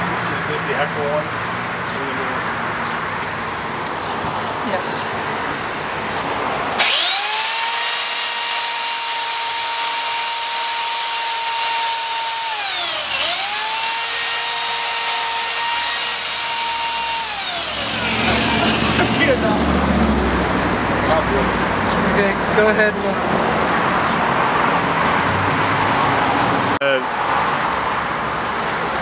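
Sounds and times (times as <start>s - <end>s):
electric chainsaw motor whining: 6.8s - 19.4s.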